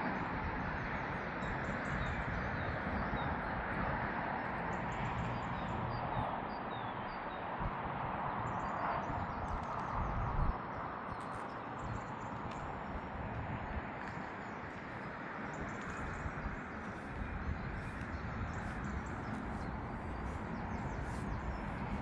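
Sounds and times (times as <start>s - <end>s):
steady wind noise: 0.0s - 22.0s
wind buffeting microphone: 0.0s - 22.0s
bird chirping: 14.0s - 22.0s.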